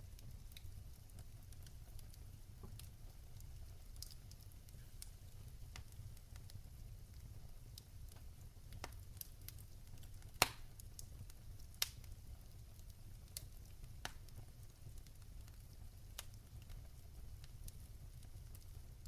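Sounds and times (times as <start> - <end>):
fire crackling in a fireplace: 0.0 - 19.0
sharp pops and snaps: 9.9 - 12.0.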